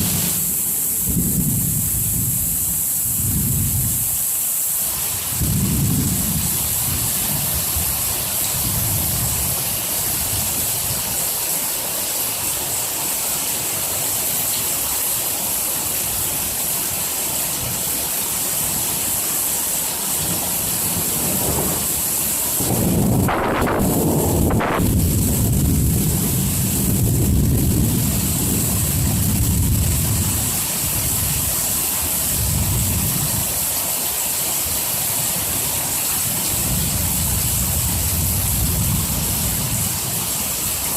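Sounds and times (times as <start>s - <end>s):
heavy rain falling: 0.0s - 40.9s
thunder rolling: 5.4s - 8.0s, 20.2s - 31.2s, 36.6s - 40.1s.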